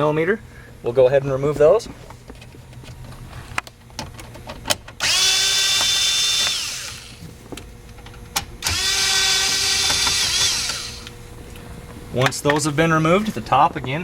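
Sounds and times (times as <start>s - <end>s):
cordless drill motor whining: 5.0s - 7.2s, 8.6s - 11.2s.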